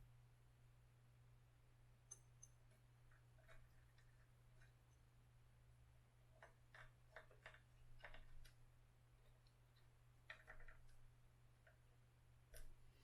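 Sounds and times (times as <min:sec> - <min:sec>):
small parts clicking: 0:06.3 - 0:08.6, 0:09.2 - 0:11.8.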